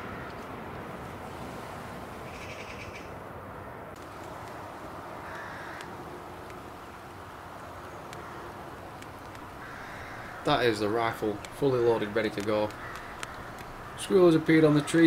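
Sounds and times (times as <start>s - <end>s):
birds calling: 0.0s - 0.6s, 2.1s - 15.0s
steady outdoor hiss: 0.0s - 15.0s
harsh rasping bird call: 2.2s - 3.2s, 5.2s - 6.0s, 7.9s - 15.0s.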